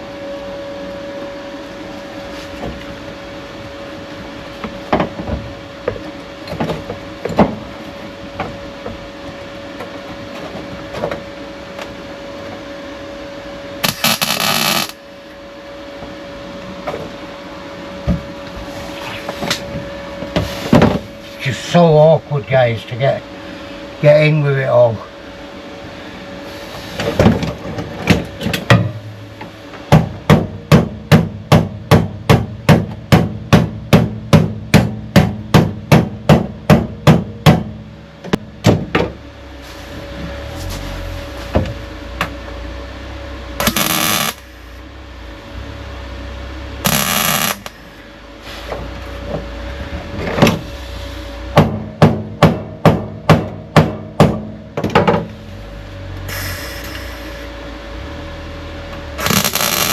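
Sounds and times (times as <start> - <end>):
harsh noisy burst: 13.8 - 15.0, 43.6 - 44.8, 46.8 - 48.7, 59.2 - 59.9
hammer striking sheet steel: 46.9 - 47.8.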